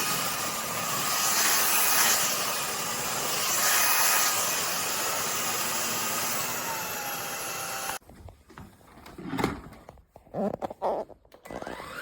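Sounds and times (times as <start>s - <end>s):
stick vacuum cleaner running: 0.0s - 8.0s, 11.4s - 12.0s
knocks and handling noises: 8.0s - 11.5s.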